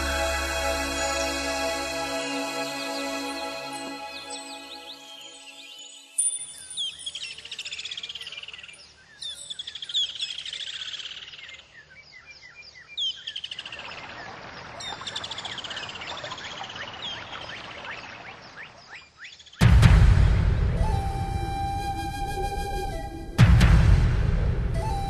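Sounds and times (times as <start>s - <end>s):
birds singing trills: 2.9s - 19.6s.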